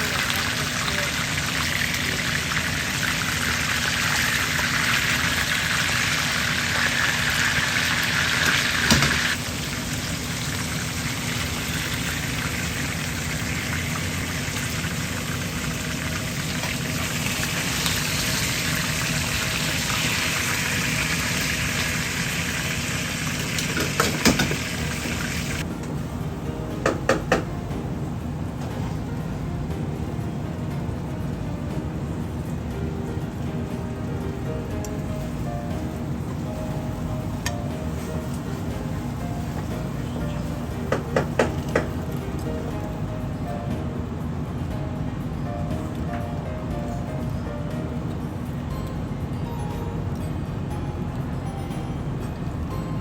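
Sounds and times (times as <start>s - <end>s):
fish sizzling in hot oil: 0.0s - 25.7s.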